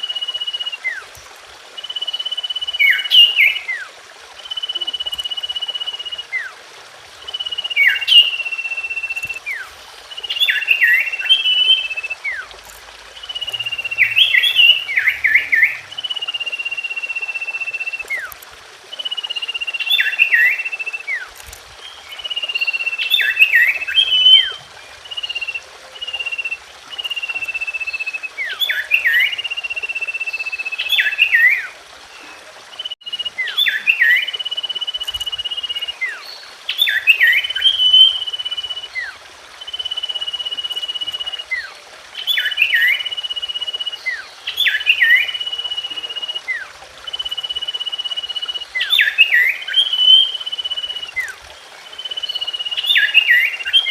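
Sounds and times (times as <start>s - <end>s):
bird singing whistled notes: 0.0s - 1.0s, 1.8s - 6.5s, 7.2s - 12.5s, 13.2s - 53.9s.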